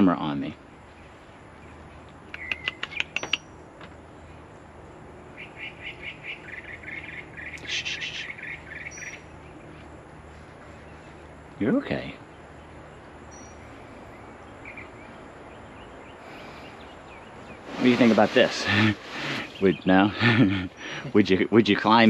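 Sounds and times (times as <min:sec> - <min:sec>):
bird calling: 0:02.2 - 0:03.6, 0:05.4 - 0:09.8, 0:12.3 - 0:21.4
quick repeated bird chirps: 0:02.2 - 0:03.6.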